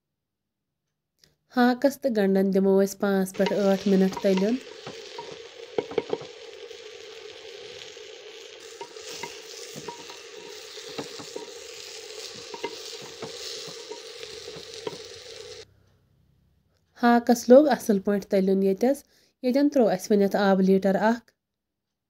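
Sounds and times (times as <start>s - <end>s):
greens sizzling in hot oil: 3.2s - 15.7s
ladle knocking and scraping pot: 3.3s - 6.4s, 8.6s - 15.1s.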